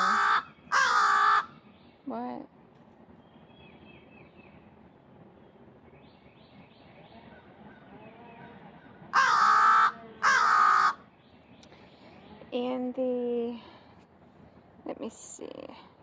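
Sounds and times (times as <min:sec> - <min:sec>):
crow cawing: 0:00.0 - 0:01.5, 0:09.1 - 0:11.0.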